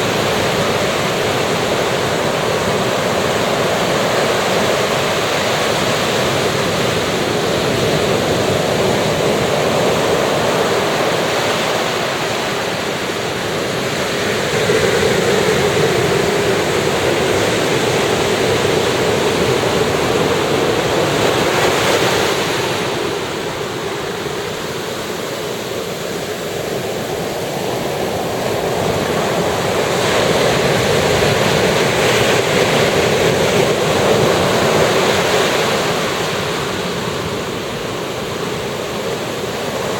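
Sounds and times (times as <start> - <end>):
waves breaking on sandy beach: 0.0 - 39.9.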